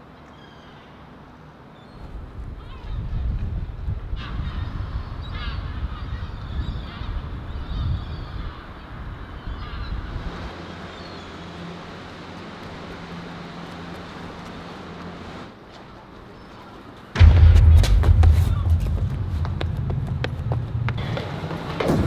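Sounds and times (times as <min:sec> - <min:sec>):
wind rumble on microphone: 0:02.0 - 0:10.5, 0:17.2 - 0:21.0
steady low hum: 0:17.2 - 0:21.6.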